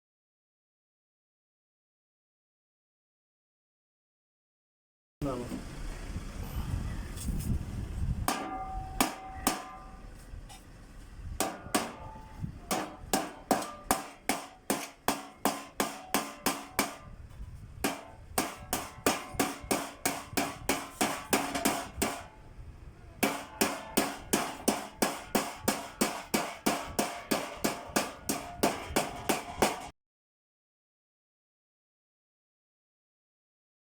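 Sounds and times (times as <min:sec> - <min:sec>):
hammer striking sheet metal: 0:08.3 - 0:10.2, 0:11.4 - 0:22.4, 0:23.2 - 0:29.9.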